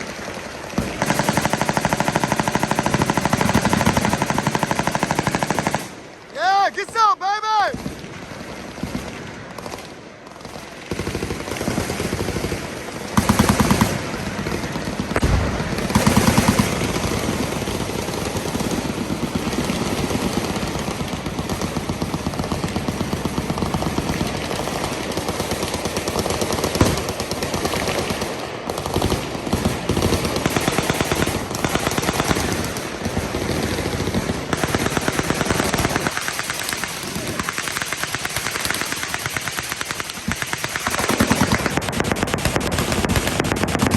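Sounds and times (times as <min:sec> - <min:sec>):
machine guns firing: 0:00.0 - 0:43.9
heavy gun blasts: 0:10.9 - 0:20.1, 0:29.8 - 0:43.9.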